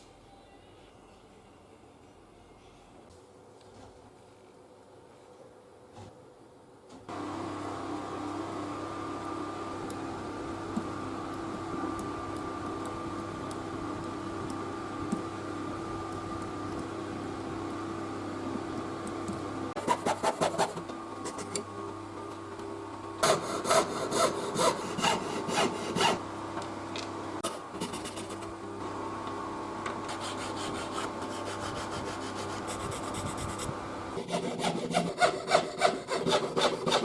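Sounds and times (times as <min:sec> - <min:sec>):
steady hum with tones: 0:00.0 - 0:37.0
hand tool rasping strokes: 0:23.2 - 0:26.2, 0:34.2 - 0:37.0.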